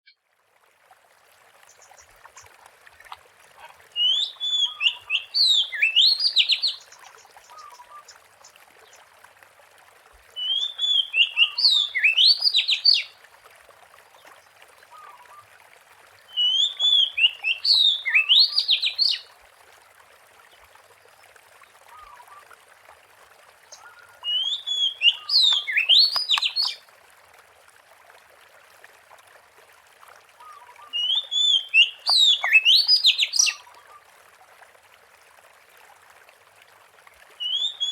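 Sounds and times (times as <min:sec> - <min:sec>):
bird singing: 0:04.0 - 0:08.1, 0:10.4 - 0:13.1, 0:16.3 - 0:19.2, 0:23.7 - 0:26.8, 0:30.5 - 0:33.6, 0:37.4 - 0:37.9.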